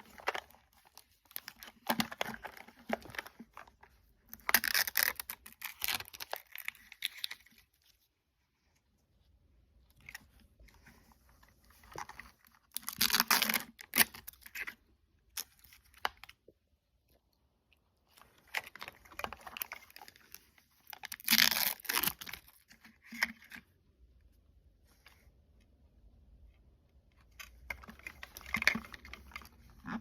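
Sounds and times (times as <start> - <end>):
plastic packaging tearing: 4.3 - 7.6, 12.7 - 14.6, 20.9 - 22.6
plastic rustling: 27.5 - 30.0.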